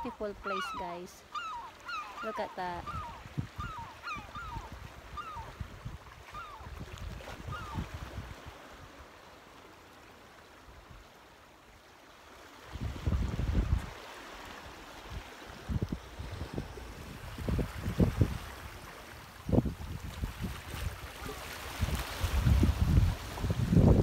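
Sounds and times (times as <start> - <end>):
bird calling: 0.0 - 5.6, 6.2 - 6.7, 7.5 - 7.8
wind buffeting microphone: 2.7 - 8.5, 12.7 - 14.0, 15.0 - 24.0.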